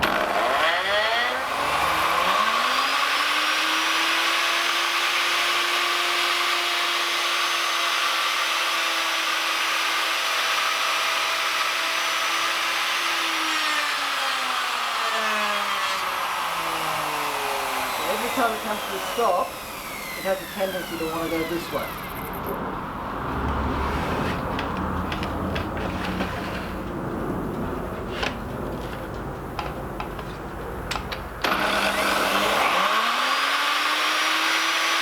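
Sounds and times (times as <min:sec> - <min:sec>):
electric router routing wood: 0:00.0 - 0:22.6, 0:31.4 - 0:35.0.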